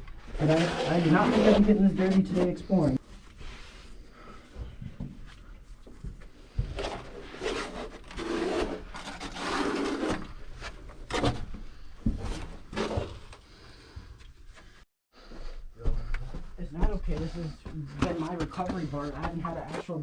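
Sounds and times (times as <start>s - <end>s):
scraping and rustling in a cave: 0.1s - 14.9s.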